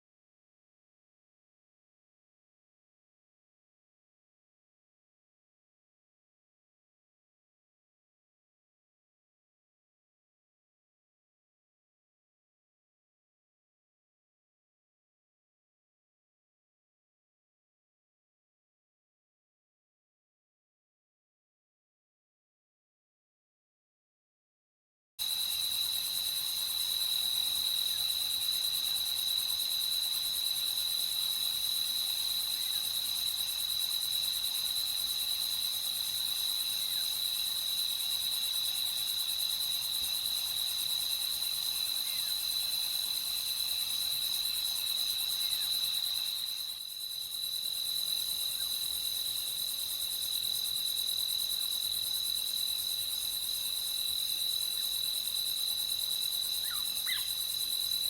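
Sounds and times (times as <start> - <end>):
crickets chirping: 25.2 - 58.0.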